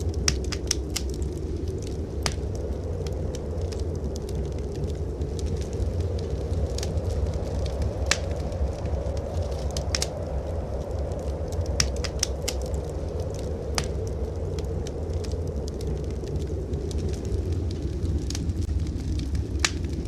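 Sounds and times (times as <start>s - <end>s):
blizzard wind rumble: 0.0s - 20.0s
fire popping: 0.0s - 20.0s
wood fire crackling: 0.0s - 20.0s.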